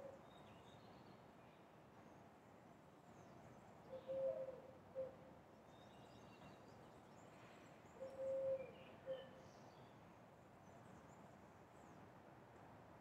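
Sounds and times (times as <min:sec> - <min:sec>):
bird cooing: 0:04.0 - 0:04.6.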